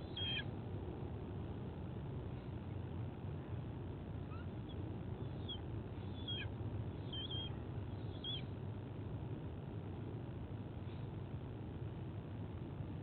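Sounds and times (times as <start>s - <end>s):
high bird chirps: 0.0s - 0.4s, 5.2s - 8.5s
low background rumble: 0.0s - 13.0s.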